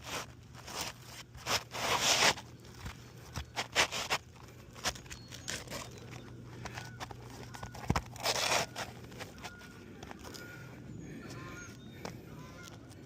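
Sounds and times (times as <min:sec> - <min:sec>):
shingles scraping and ripping: 0:00.0 - 0:10.4.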